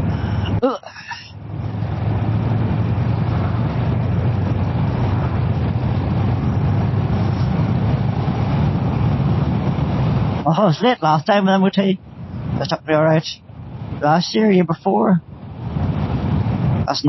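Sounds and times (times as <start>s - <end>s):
wind and road noise: 0.0s - 17.0s
motorcycle engine running: 1.4s - 10.2s.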